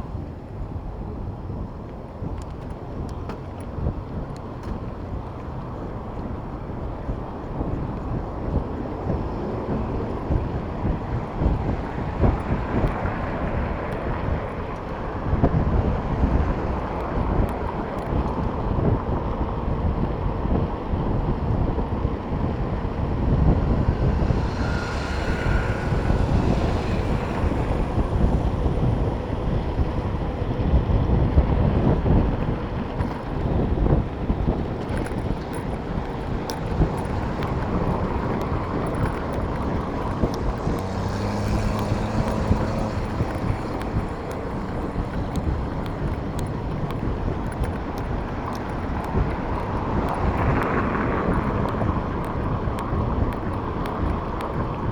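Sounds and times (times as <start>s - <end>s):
city traffic: 0.0s - 54.9s
wind rumbling on microphone: 0.0s - 54.9s.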